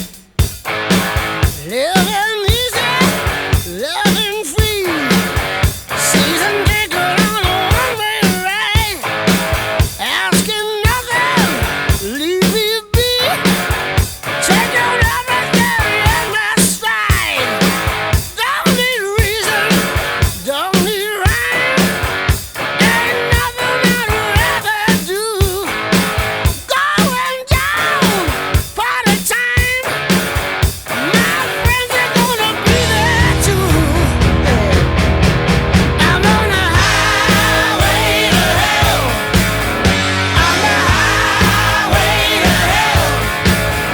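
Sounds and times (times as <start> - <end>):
electric guitar: 0.0 - 43.9
steady drum beat: 0.0 - 43.9
person singing: 1.6 - 9.1, 10.0 - 13.6, 14.4 - 22.2, 22.8 - 25.8, 26.6 - 30.0, 30.9 - 35.1, 35.9 - 43.9.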